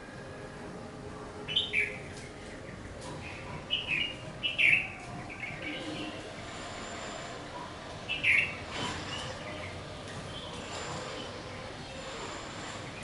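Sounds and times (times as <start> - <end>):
faint outdoor background: 0.0 - 13.0
bird chirping: 1.5 - 6.2, 8.1 - 12.2.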